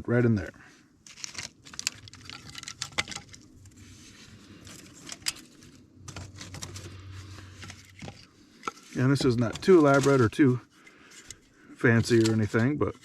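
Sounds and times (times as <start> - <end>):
twigs knocking together: 1.0 - 3.8.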